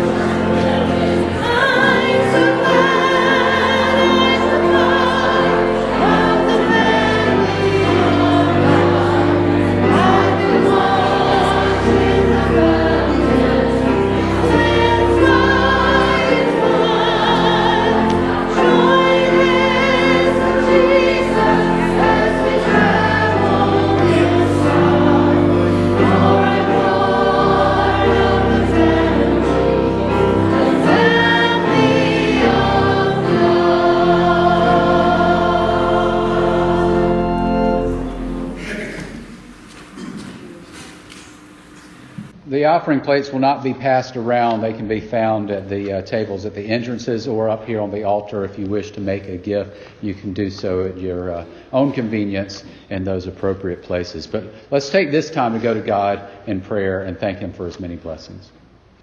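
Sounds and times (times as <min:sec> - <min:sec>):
choir singing: 0:00.0 - 0:42.3
instrumental accompaniment: 0:00.0 - 0:42.3.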